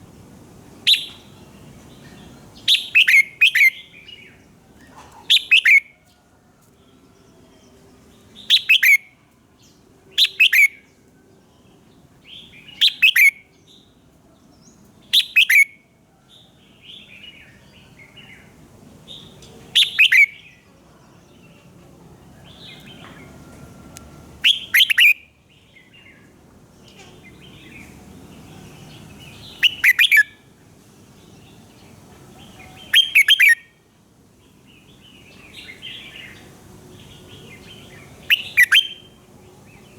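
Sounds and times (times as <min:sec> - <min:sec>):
bird warbling song: 0:00.8 - 0:05.9, 0:08.4 - 0:09.0, 0:14.6 - 0:15.7, 0:16.9 - 0:20.6, 0:24.4 - 0:30.4, 0:31.2 - 0:33.7, 0:34.6 - 0:39.9
bird chattering notes: 0:24.4 - 0:25.2, 0:29.6 - 0:30.3, 0:32.9 - 0:33.6, 0:38.3 - 0:39.0.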